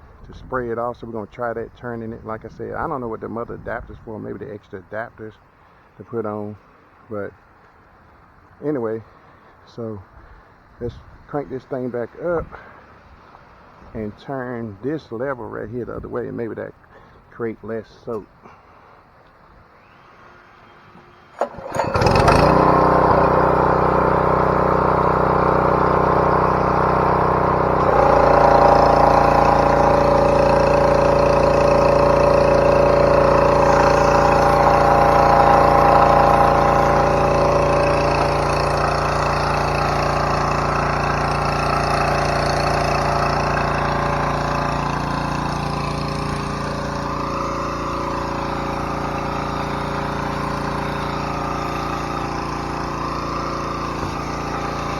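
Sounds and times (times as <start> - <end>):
small gas engine starting and running: 18.1 - 54.9.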